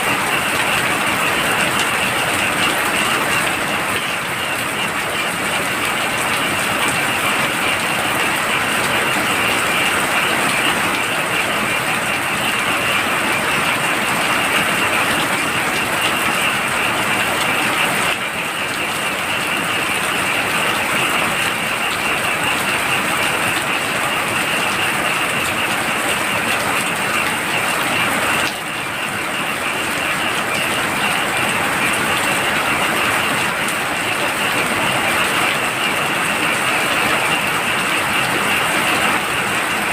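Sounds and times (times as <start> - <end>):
frogs chorus: 0.0 - 39.9
heavy rain pouring: 0.0 - 39.9.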